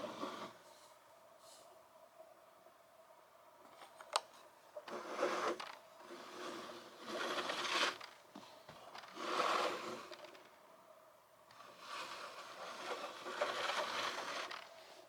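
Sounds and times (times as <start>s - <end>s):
plastic rubbing and scraping: 4.9s - 8.2s, 8.8s - 10.5s, 11.5s - 15.0s.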